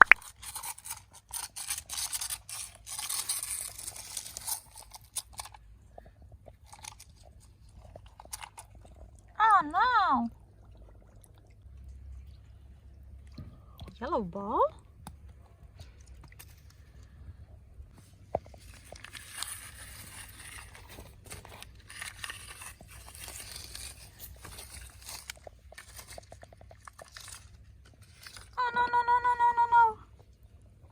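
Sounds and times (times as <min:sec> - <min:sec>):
scraping and rubbing: 0:00.0 - 0:05.6, 0:18.0 - 0:28.6.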